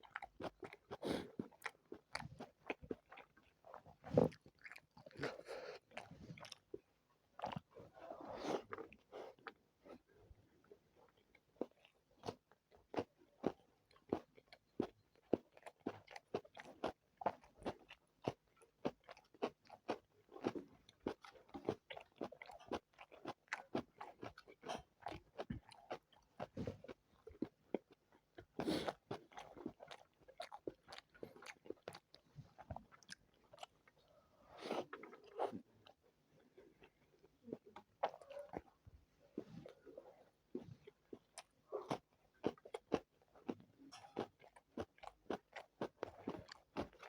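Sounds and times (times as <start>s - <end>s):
chewing and biting food: 0.0s - 47.0s.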